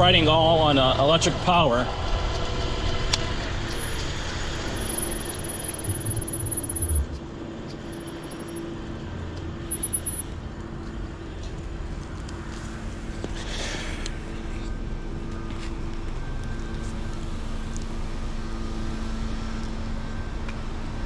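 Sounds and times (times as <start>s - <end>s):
wind and tyre noise: 1.9s - 13.5s
faint motor hum: 1.9s - 21.0s.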